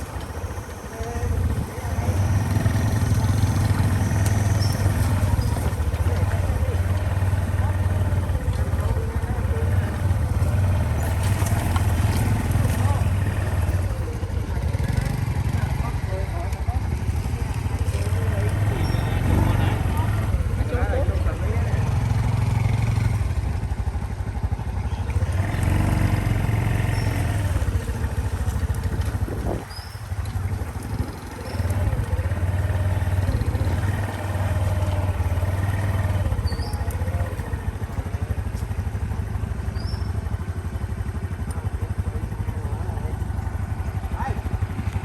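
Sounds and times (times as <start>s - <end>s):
small motorcycle engine: 0.0s - 45.0s
wind noise: 28.4s - 31.3s.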